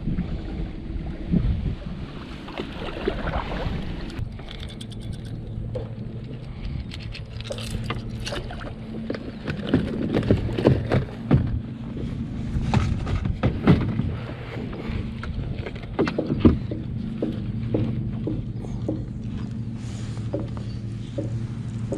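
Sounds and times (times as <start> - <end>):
steady low hum: 0.0 - 21.9
fishing gear knocks and clicks: 4.2 - 11.6.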